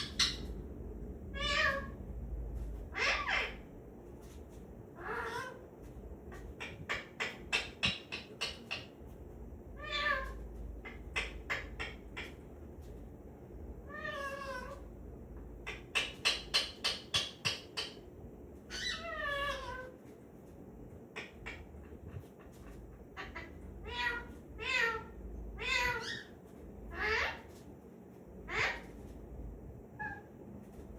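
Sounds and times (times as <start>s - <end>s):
parrot mimicking cat meows: 1.3s - 2.0s, 2.9s - 3.6s, 5.0s - 5.6s, 9.8s - 10.4s, 13.9s - 14.8s, 18.7s - 19.9s, 23.2s - 26.3s, 26.9s - 27.5s, 28.5s - 28.9s.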